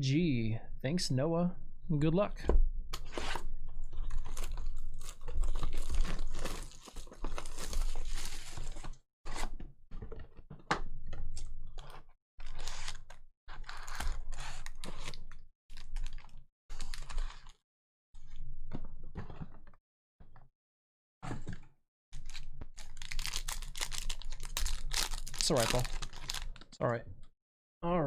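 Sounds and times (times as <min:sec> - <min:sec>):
plastic packaging torn and crinkled: 0:04.0 - 0:09.0, 0:12.4 - 0:17.6, 0:22.2 - 0:26.8.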